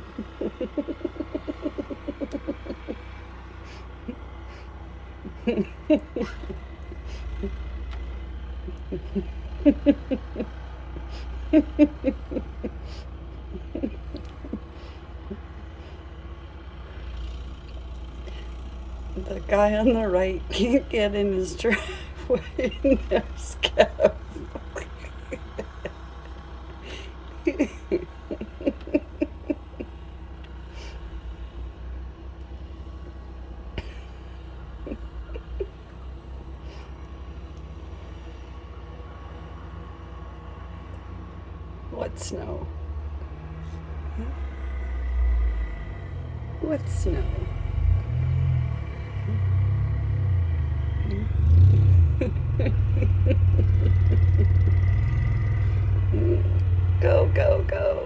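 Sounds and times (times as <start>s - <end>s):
person laughing: 0.0s - 7.9s, 8.6s - 16.0s, 21.6s - 30.0s, 33.8s - 36.0s, 51.0s - 54.9s, 55.6s - 57.9s
car engine revving: 0.0s - 58.0s
steady low rumble: 44.1s - 58.0s.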